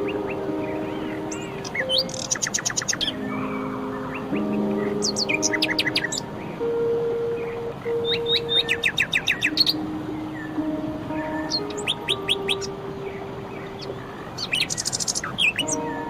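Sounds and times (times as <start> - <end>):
soft held low tones: 0.0 - 16.0
songbirds chirping: 0.0 - 16.0.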